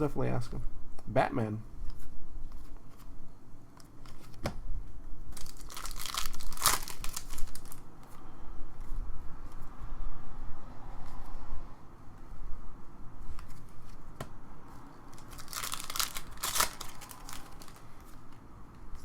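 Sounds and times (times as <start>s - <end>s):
card pack wrapper crinkling: 5.3s - 7.8s, 15.1s - 18.2s.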